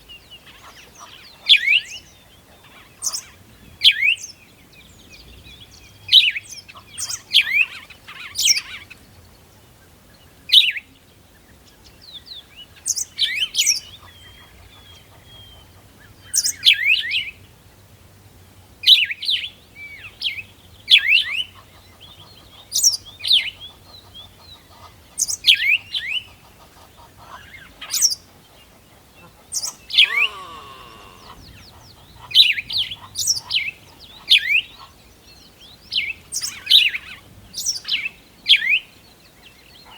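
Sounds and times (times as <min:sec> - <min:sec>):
birds chirping: 0:25.9 - 0:36.7
longer lower bird call: 0:29.2 - 0:33.4.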